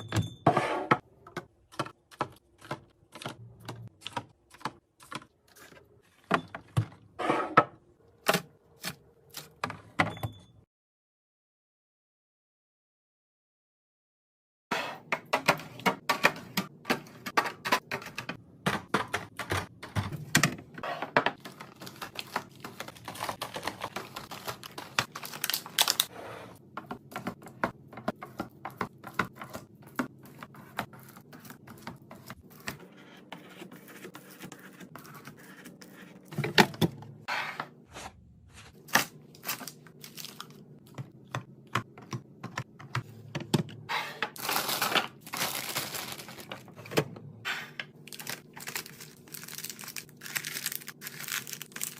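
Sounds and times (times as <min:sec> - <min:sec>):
food containers clicking and knocking: 0:15.0 - 0:32.4, 0:40.2 - 0:47.2
packaging crinkling: 0:21.5 - 0:26.1, 0:44.4 - 0:46.7, 0:48.0 - 0:51.9.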